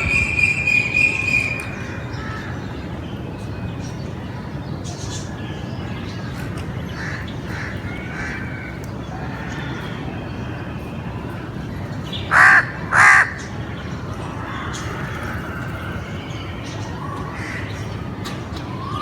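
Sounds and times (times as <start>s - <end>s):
crow cawing: 12.3s - 13.5s.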